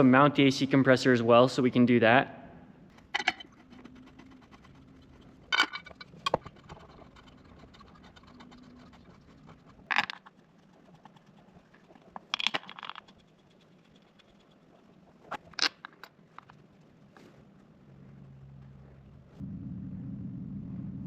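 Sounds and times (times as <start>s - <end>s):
metal parts clinking and clattering: 3.0s - 3.7s, 5.4s - 6.4s, 9.9s - 10.2s, 12.3s - 13.1s, 15.3s - 16.6s.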